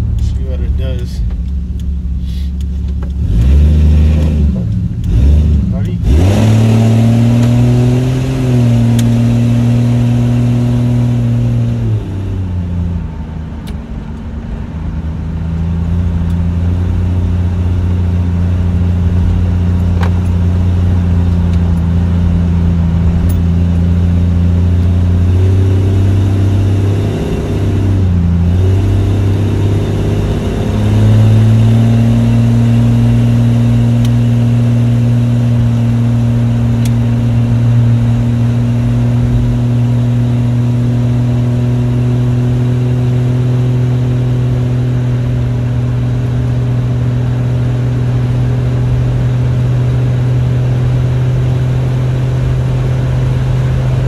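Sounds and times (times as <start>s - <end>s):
car engine droning: 0.0s - 54.0s.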